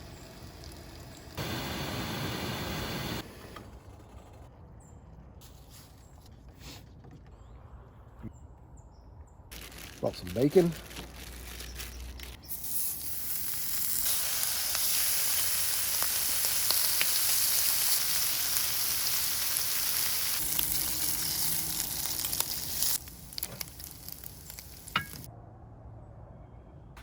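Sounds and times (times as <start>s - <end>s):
bacon sizzling in a hot pan: 0.0s - 3.0s, 12.4s - 25.3s.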